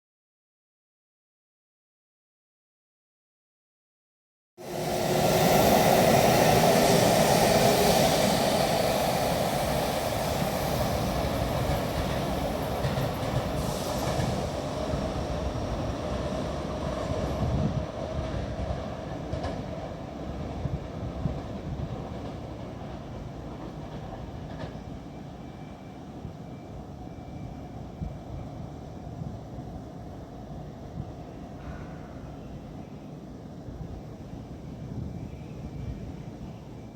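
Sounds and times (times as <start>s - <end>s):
electric train running: 4.6s - 17.5s.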